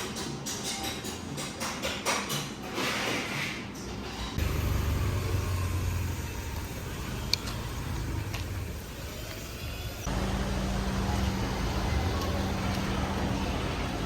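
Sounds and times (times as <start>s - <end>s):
road vehicle rumble: 4.4s - 14.0s.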